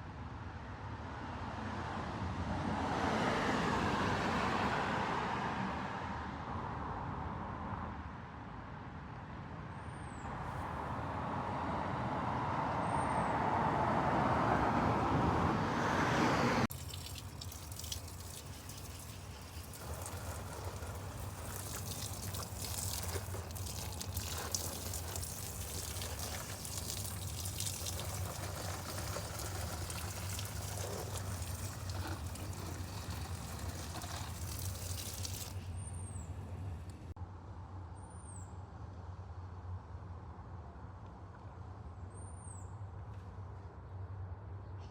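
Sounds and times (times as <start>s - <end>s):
rushing noise of passing vehicle: 1.0s - 8.0s, 10.3s - 37.2s.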